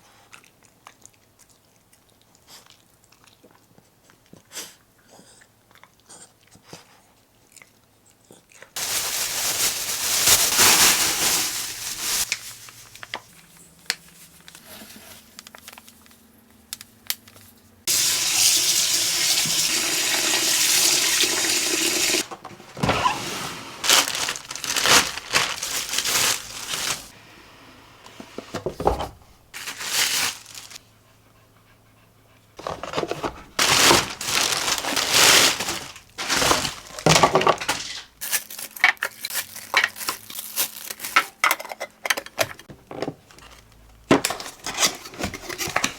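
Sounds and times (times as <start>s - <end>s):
water running: 17.9s - 27.2s
splashing and clattering: 32.6s - 38.2s.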